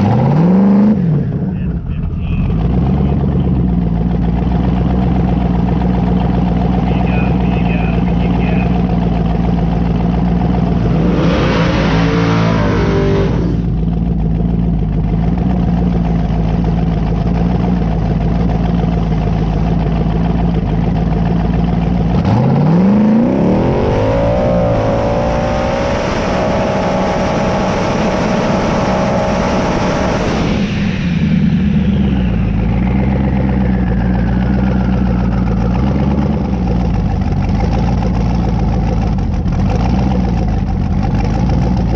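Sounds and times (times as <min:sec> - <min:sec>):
drag car engine revving: 0:00.0 - 0:41.9
turbo whine falling in pitch: 0:09.6 - 0:14.2, 0:23.2 - 0:36.6.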